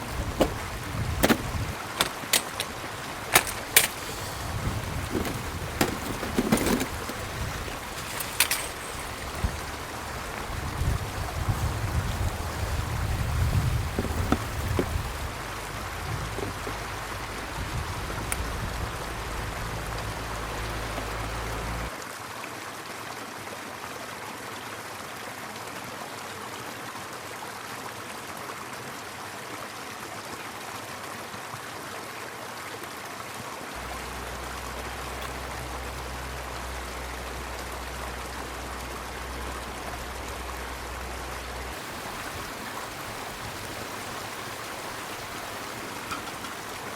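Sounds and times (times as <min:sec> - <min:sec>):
river rushing: 0:00.0 - 0:22.0, 0:33.8 - 0:46.9.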